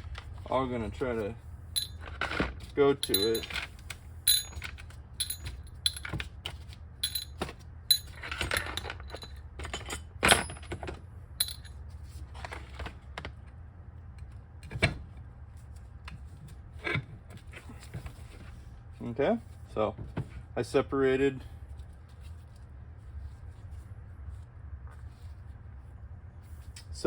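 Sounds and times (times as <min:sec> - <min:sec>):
steady low hum: 0:00.0 - 0:06.2, 0:06.9 - 0:12.1
metallic clinks of screws and tools: 0:01.8 - 0:02.1, 0:03.0 - 0:03.7, 0:04.3 - 0:06.2, 0:07.0 - 0:10.8, 0:11.4 - 0:11.8.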